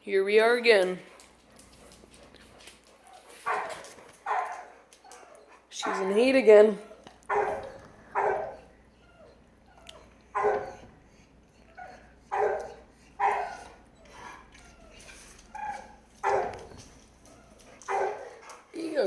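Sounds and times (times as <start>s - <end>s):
dog whining: 3.1s - 6.0s, 6.8s - 19.0s
dog barking: 3.1s - 6.1s, 7.3s - 8.7s, 10.3s - 10.9s, 11.8s - 13.8s, 15.6s - 16.8s, 17.8s - 18.5s.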